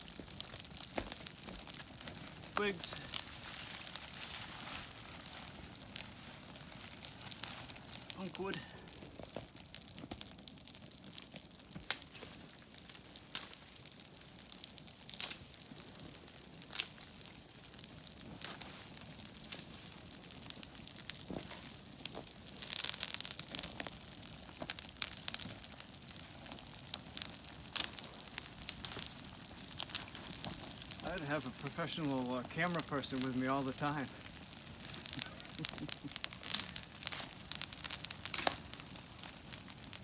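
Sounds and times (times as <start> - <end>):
dry twigs snapping: 0.0 - 9.4, 11.8 - 12.3, 13.2 - 14.0, 15.1 - 15.6, 18.4 - 20.0, 20.6 - 31.2, 32.7 - 40.0
rustling handling of tinder: 0.8 - 8.6.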